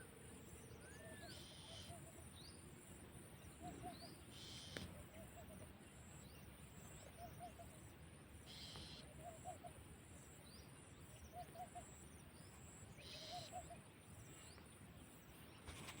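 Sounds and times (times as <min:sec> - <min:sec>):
faint insect hiss: 0:00.0 - 0:16.0
short low bird calls: 0:03.6 - 0:05.5, 0:13.0 - 0:13.8.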